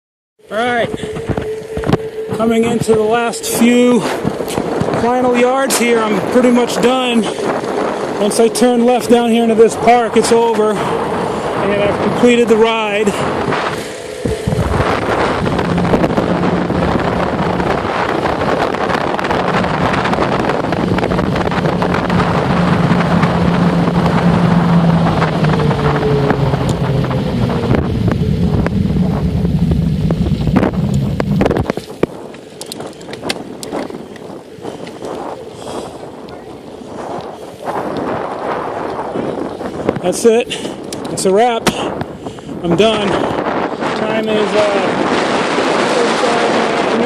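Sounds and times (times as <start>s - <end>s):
steady low hum: 0.4s - 32.4s
bicycle road noise: 0.4s - 47.0s
wind rushing over microphone: 0.4s - 47.0s.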